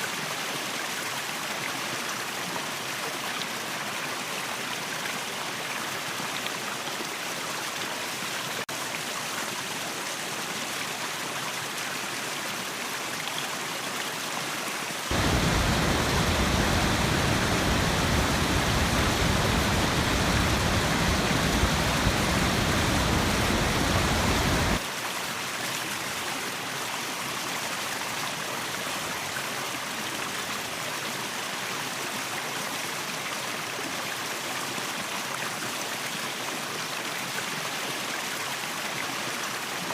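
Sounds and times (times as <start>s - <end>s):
waterfall rushing: 15.1s - 24.8s.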